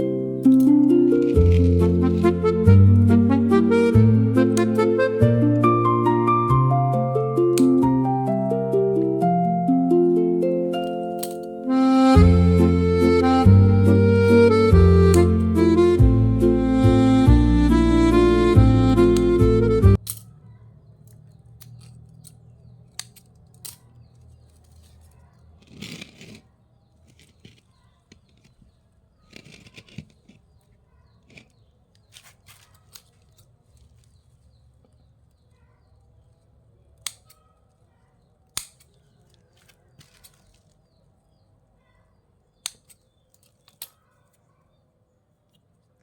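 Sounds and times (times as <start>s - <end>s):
pruning shears snipping stems: 0.4s - 5.6s, 7.4s - 8.0s, 10.8s - 12.7s, 13.8s - 15.7s, 21.0s - 25.0s, 31.3s - 34.0s, 38.5s - 40.8s, 42.6s - 44.0s
foliage rustling: 0.9s - 3.0s.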